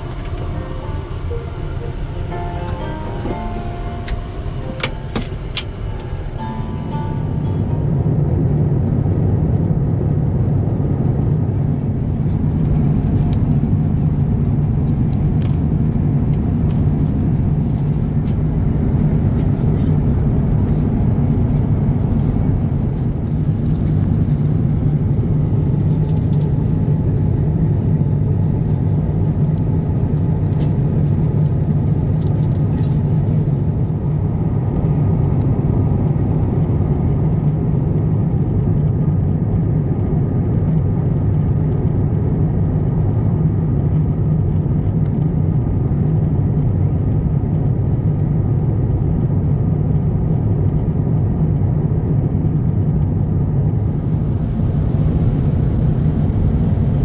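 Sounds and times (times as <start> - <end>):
airliner cabin rumble: 0.0 - 8.8, 53.2 - 57.0.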